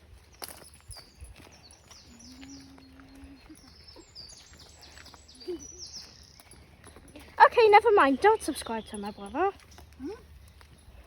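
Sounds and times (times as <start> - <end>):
small bird chirping: 0.6 - 7.0, 7.8 - 11.0.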